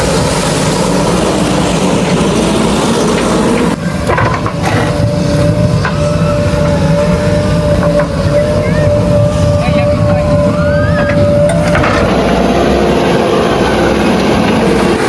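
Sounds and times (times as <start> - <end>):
diesel engine running: 0.0 - 15.0
steady whine: 0.0 - 15.0.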